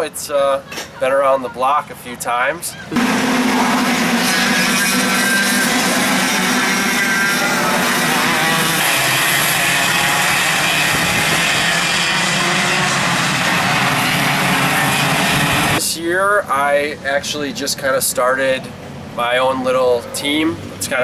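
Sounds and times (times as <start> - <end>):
kart engines buzzing: 2.9 - 15.8.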